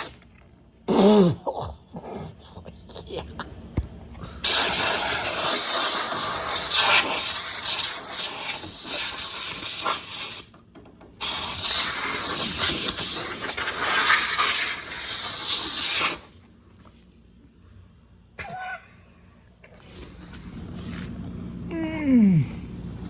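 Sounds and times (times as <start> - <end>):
compressed air hissing blasts: 4.4 - 10.5, 11.2 - 16.3.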